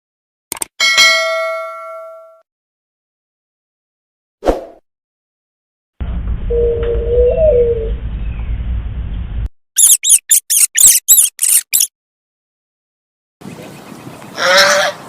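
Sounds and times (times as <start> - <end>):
low rumbling background: 6.0 - 9.5
short wavering call: 6.5 - 8.0
small bird chirping: 9.8 - 11.9.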